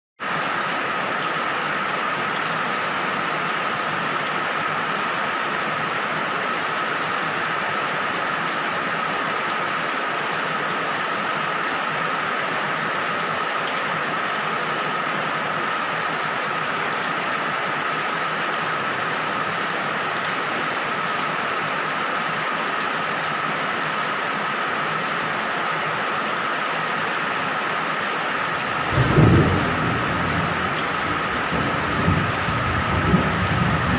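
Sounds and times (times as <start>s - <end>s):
steady rain falling: 0.2s - 33.9s
low rumble of thunder: 28.7s - 33.9s.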